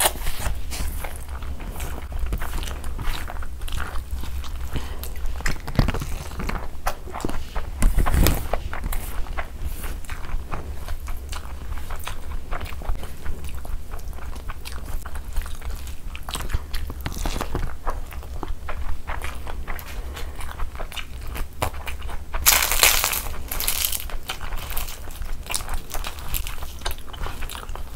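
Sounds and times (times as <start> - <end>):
close chewing: 0.0 - 27.9
fingers squelching rice: 0.0 - 27.9
papad crunching: 0.0 - 27.9.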